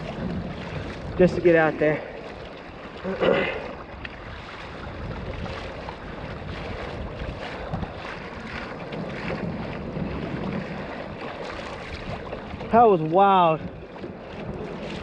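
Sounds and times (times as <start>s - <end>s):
water splashing against kayak: 0.0s - 15.0s
wind noise on microphone: 0.0s - 15.0s.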